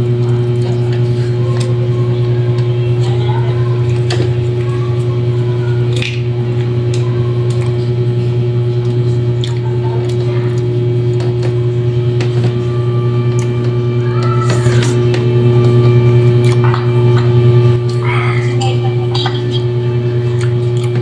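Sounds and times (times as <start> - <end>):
loud steady low hum: 0.0 - 21.0
person chewing and smacking: 8.8 - 10.2, 13.2 - 13.6, 15.8 - 18.0, 20.3 - 21.0.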